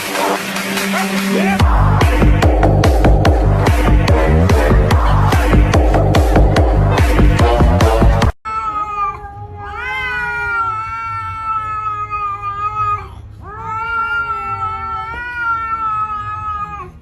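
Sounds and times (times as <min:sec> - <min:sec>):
dance music: 0:00.0 - 0:08.4
cat yowling: 0:08.5 - 0:17.0.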